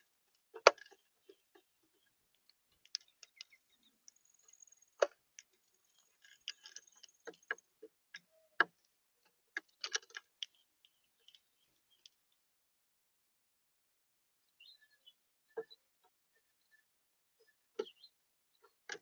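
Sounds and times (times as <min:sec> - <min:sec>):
birds pecking and tapping on feeder: 0:00.0 - 0:12.0, 0:18.6 - 0:19.0.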